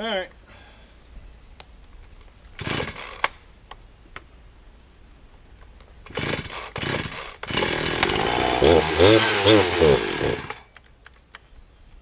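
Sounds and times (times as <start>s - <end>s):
chainsaw starter cord pulls: 2.6s - 3.4s, 6.1s - 10.8s.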